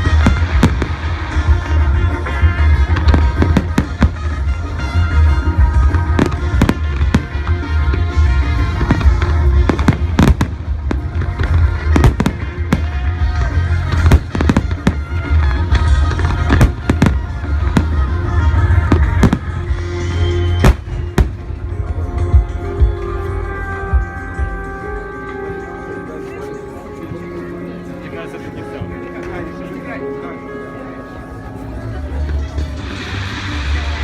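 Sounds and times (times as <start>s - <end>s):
fireworks bangs: 0.0s - 19.6s
loud music with heavy bass: 0.0s - 24.9s.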